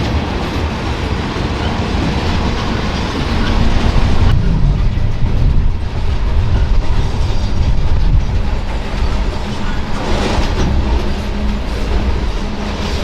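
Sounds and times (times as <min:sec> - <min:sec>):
train wheels clacking on rails: 0:00.0 - 0:13.0.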